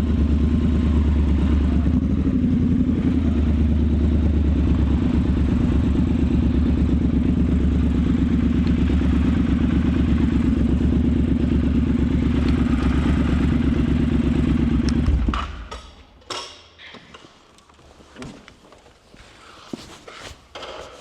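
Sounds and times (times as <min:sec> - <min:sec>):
motorcycle engine running: 0:00.0 - 0:16.0
engine clicks and knocks: 0:12.2 - 0:16.5.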